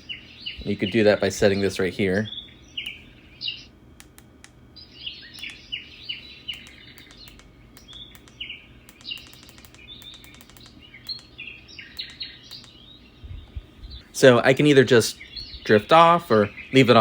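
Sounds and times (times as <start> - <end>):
small birds chirping: 0.0 - 17.0
sharp clicks: 2.8 - 3.0, 4.0 - 4.6, 5.3 - 5.8, 6.5 - 12.9.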